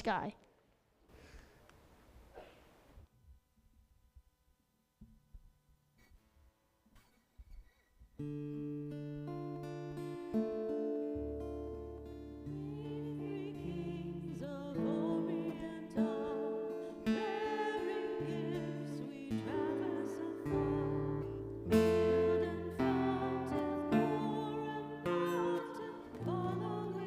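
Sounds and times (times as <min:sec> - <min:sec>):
acoustic guitar strumming chords: 0:08.3 - 0:27.0
person singing: 0:12.5 - 0:27.0.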